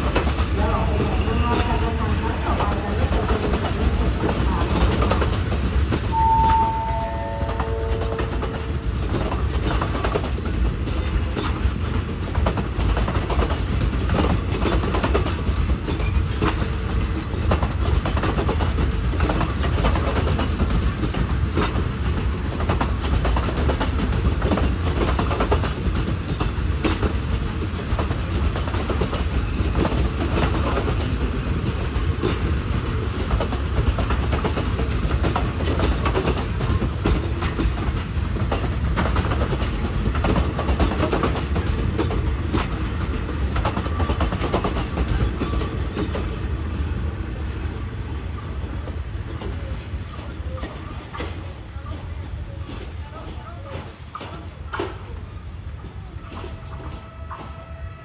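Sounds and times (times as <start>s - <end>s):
train low rumble: 0.0s - 58.0s
train wheels clattering: 0.0s - 58.0s.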